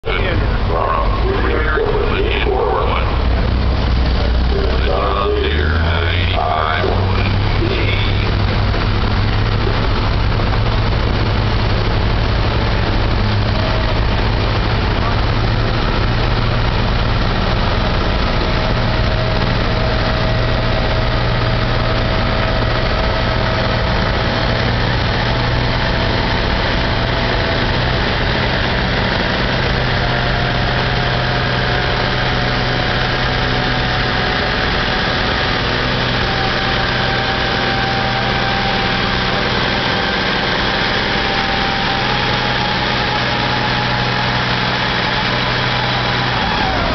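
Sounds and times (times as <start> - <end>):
tractor diesel engine revving hard: 0.0 - 46.9.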